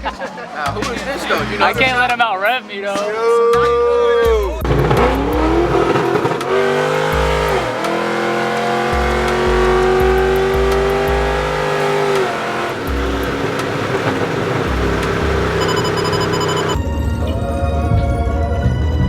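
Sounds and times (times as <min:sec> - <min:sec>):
bass-heavy music beat: 0:00.0 - 0:02.2, 0:03.6 - 0:16.9
car engine revving hard: 0:04.6 - 0:16.8.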